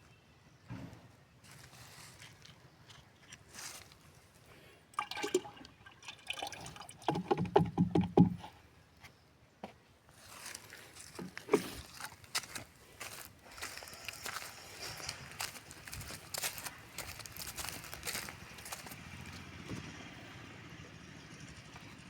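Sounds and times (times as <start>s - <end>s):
liquid pouring and gurgling: 5.0s - 8.2s
knocks and splashes: 5.0s - 8.4s.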